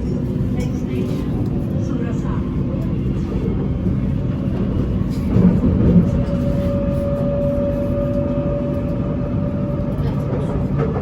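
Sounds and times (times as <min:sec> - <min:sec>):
electric train rumbling: 0:00.0 - 0:11.0
train whine: 0:00.0 - 0:11.0.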